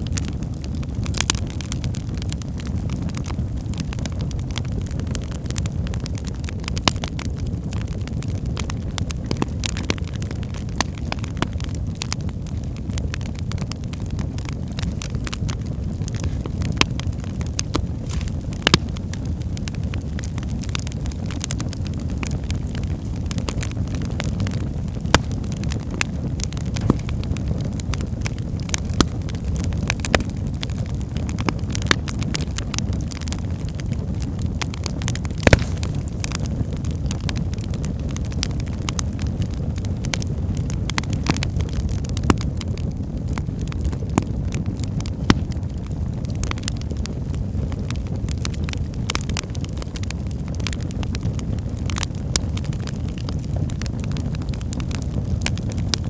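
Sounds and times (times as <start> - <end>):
fire crackling and popping: 0.0 - 56.0
low rumble of flame: 0.0 - 56.0
wood snapping in fire: 0.0 - 56.0.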